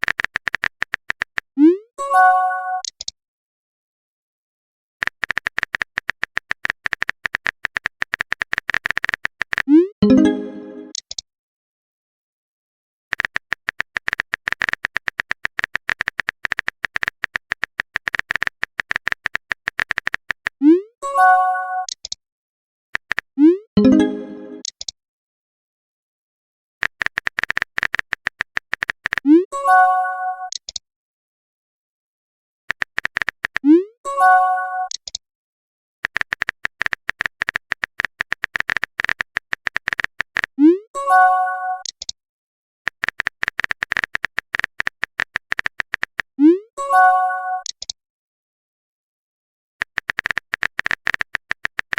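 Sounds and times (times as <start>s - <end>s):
keyboard typing clicks: 0.0s - 1.5s, 2.8s - 3.2s, 5.0s - 11.2s, 13.1s - 20.6s, 21.8s - 22.2s, 23.0s - 25.0s, 26.8s - 29.4s, 30.5s - 30.8s, 32.7s - 33.8s, 34.8s - 35.2s, 36.0s - 40.6s, 41.8s - 42.2s, 42.9s - 46.3s, 47.6s - 48.0s, 49.8s - 51.9s
notification chime: 10.0s - 10.9s, 23.8s - 24.6s.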